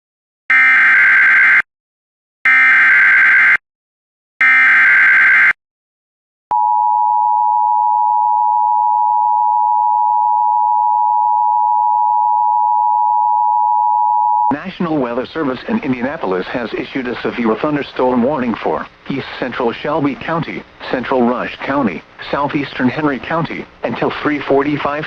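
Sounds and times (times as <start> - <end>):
steady warning alarm tone: 0.5 - 1.6, 2.5 - 3.6, 4.4 - 5.6.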